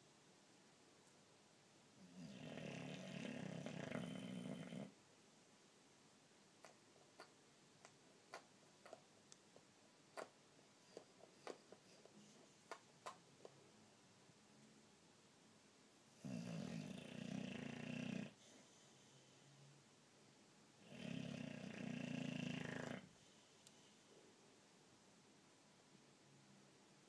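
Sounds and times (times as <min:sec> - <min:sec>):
dog snoring: 0:02.0 - 0:05.0, 0:16.2 - 0:19.4, 0:20.8 - 0:23.4.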